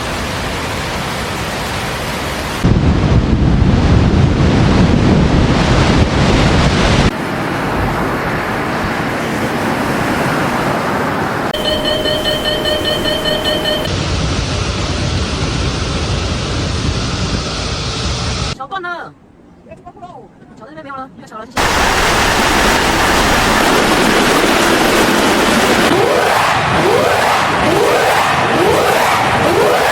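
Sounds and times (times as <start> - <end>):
wind: 0.0 - 29.9
steady pitched tone: 11.6 - 14.0
deep rushing noise: 21.6 - 29.9
floodwater rushing: 21.6 - 29.9
rain rushing: 21.6 - 29.9.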